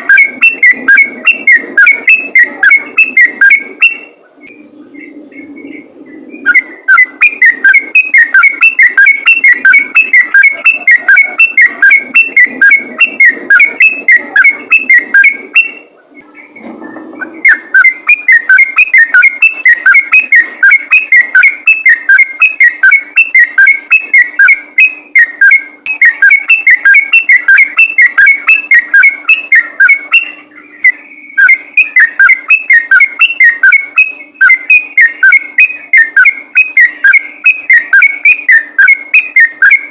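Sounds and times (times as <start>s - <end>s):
bird chattering song: 0.0s - 39.9s
faint steady hum: 0.0s - 39.9s.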